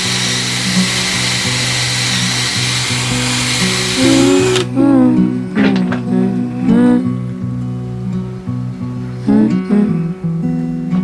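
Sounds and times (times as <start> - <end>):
power drill whining: 0.0 - 4.8
background music: 0.0 - 11.0.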